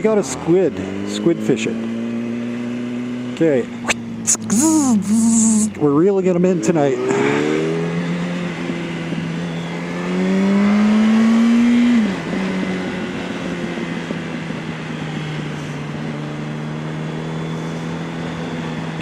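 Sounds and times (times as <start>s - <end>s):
motorcycle engine revving: 6.4s - 14.0s.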